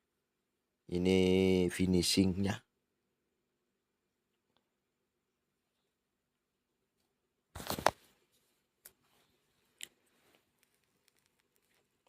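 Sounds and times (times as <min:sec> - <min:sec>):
crackling rustling noise: 0:07.5 - 0:12.0.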